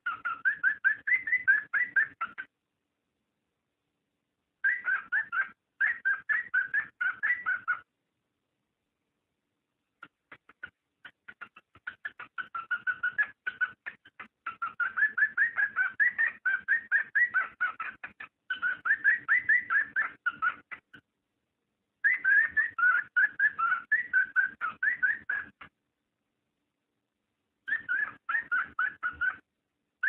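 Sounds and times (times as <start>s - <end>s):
cockatiel chirping whistles: 0.0s - 2.5s, 4.6s - 7.8s, 10.4s - 20.9s, 22.0s - 25.7s, 27.7s - 29.4s.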